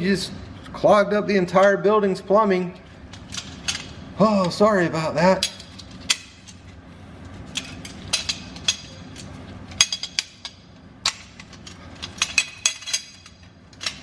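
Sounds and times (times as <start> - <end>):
metal parts clinking: 3.1 - 4.6, 7.5 - 14.0.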